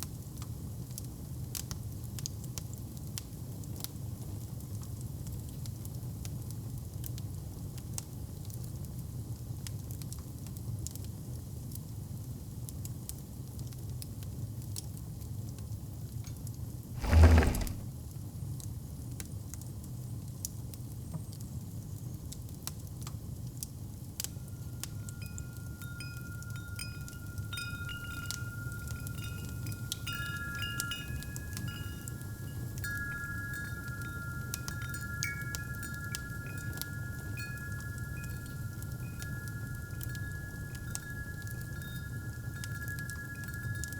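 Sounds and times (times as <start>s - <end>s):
wind chimes ringing: 17.0s - 17.8s, 24.5s - 43.9s
fireplace fire crackling: 17.0s - 17.9s.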